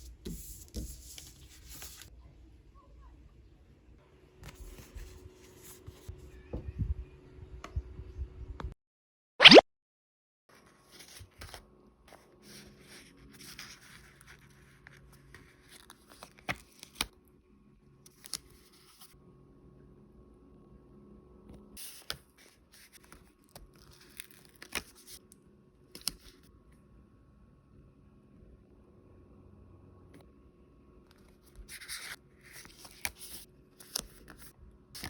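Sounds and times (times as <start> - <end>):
paper and packaging crinkling: 22.8 - 25.2.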